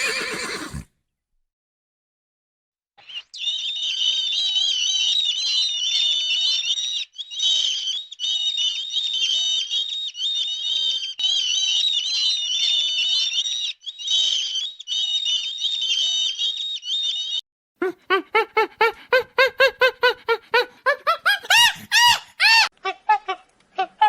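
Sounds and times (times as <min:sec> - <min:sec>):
birds chirping and twittering: 0:03.0 - 0:17.4.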